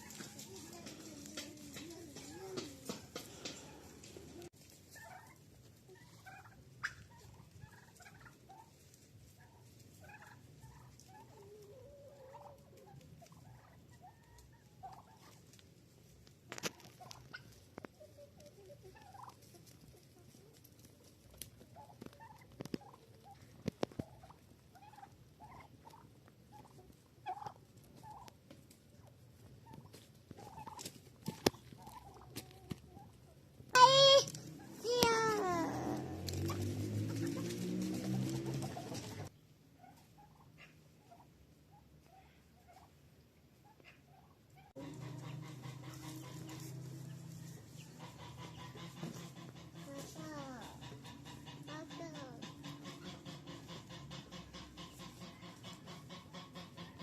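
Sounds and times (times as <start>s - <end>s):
poultry calling faintly: 0.0s - 57.0s.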